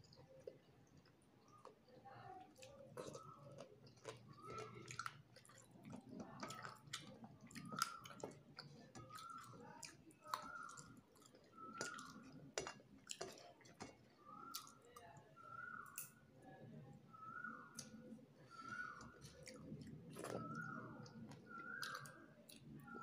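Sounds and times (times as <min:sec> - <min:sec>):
person chewing: 0:02.6 - 0:14.8, 0:17.7 - 0:22.8.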